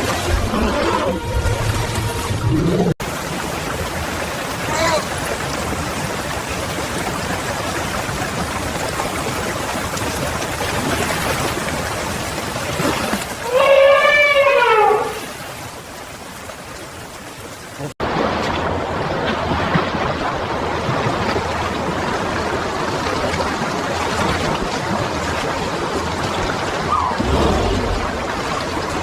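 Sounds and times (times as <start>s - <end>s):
river water rushing: 3.0s - 29.0s
animal call falling in pitch: 13.4s - 15.2s, 26.9s - 28.1s.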